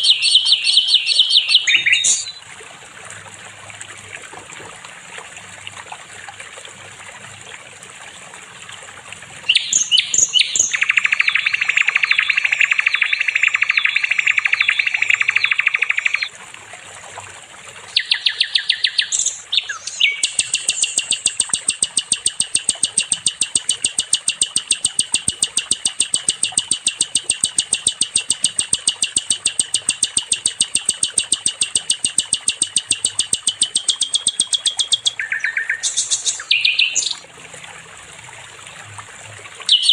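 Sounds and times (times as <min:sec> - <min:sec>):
bird warbling: 0:00.0 - 0:02.4, 0:09.5 - 0:16.3, 0:18.0 - 0:37.2
fast even bird trill: 0:00.0 - 0:02.4, 0:09.5 - 0:16.3, 0:18.0 - 0:37.2
bird buzzy trill: 0:09.6 - 0:16.3, 0:18.0 - 0:37.2.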